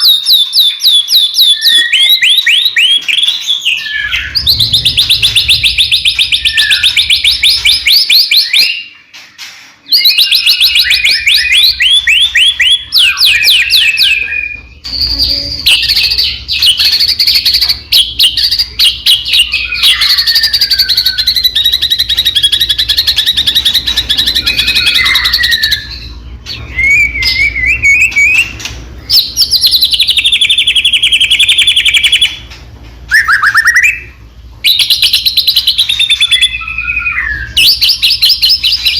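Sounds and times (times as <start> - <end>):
songbird singing trills and whistles: 0.0 - 32.5, 33.1 - 38.9.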